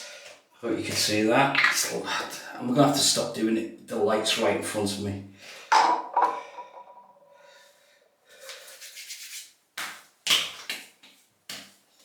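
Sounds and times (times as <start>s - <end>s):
hands slapping face: 9.8s - 11.8s.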